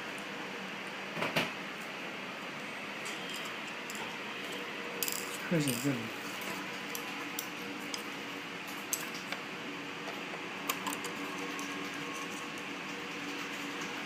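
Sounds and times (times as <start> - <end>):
small parts and tools clicking: 5.0 - 5.9.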